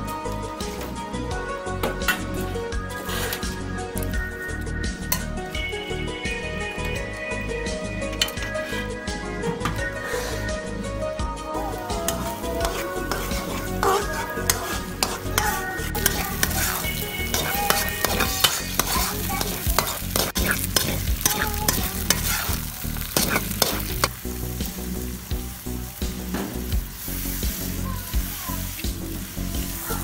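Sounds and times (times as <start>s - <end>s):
mixture sizzling in a pot: 2.5s - 9.0s, 9.6s - 30.0s
metal spatula scraping a pot: 2.9s - 3.6s, 8.2s - 9.0s, 12.1s - 24.1s.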